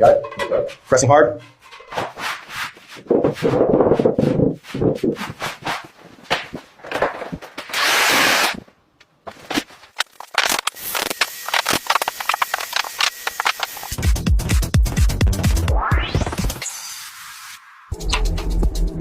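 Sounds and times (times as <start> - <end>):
electronic music with heavy beat: 11.9 - 19.0.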